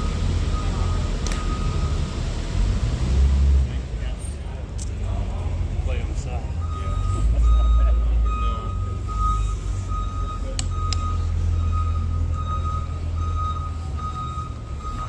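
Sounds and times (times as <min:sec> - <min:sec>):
vehicle backup alarm beeping: 0:00.0 - 0:02.3, 0:05.8 - 0:15.0
low engine rumble: 0:00.0 - 0:15.0.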